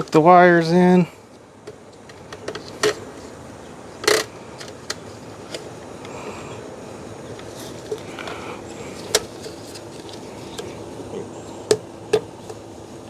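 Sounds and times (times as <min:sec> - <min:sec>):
faint steady hum: 0:00.0 - 0:13.0
plastic clicks and taps: 0:01.7 - 0:03.2, 0:04.0 - 0:06.2, 0:09.0 - 0:10.7.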